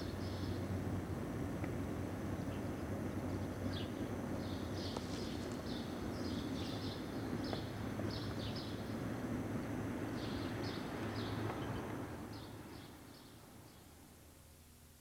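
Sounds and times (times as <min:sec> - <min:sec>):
small birds chirping: 0:00.0 - 0:00.7, 0:02.3 - 0:09.0, 0:10.0 - 0:14.0
low outdoor rumble: 0:00.0 - 0:15.0.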